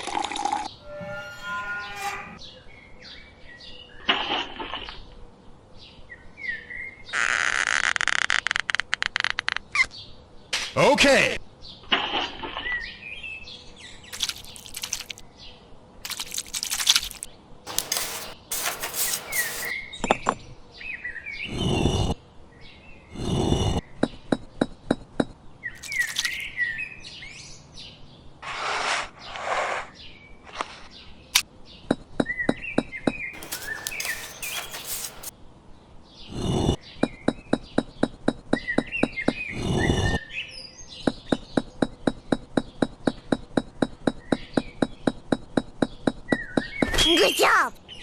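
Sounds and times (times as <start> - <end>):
short scraping noises: 0.7 - 2.4, 17.7 - 19.7, 28.4 - 29.9, 33.4 - 35.3.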